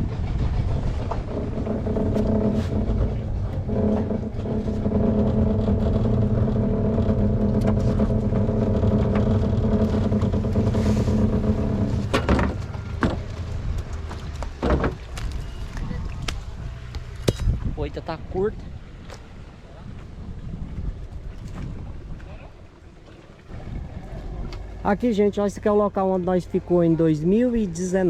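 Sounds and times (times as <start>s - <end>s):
small boat motor running: 0.0s - 17.7s.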